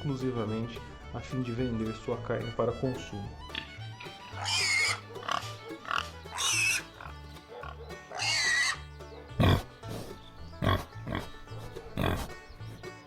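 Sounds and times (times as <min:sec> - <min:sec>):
music with steady bass line: 0:00.0 - 0:04.4
pigs squealing: 0:03.4 - 0:12.4.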